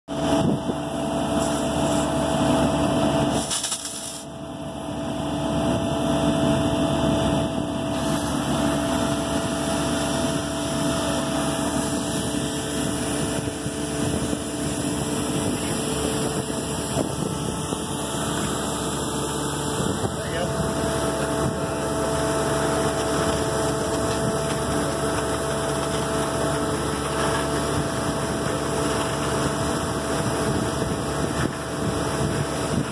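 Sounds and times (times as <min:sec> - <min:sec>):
engine running steadily: 0:00.1 - 0:32.9.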